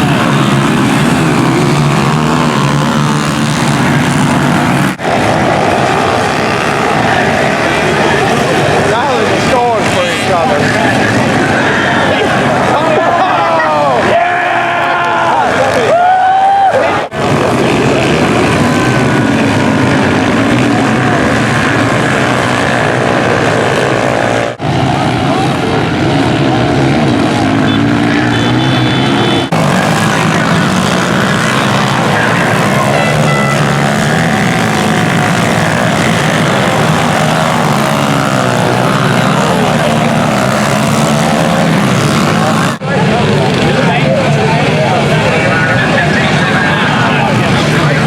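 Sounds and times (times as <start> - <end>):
pit bike engines revving: 0.0 - 48.0.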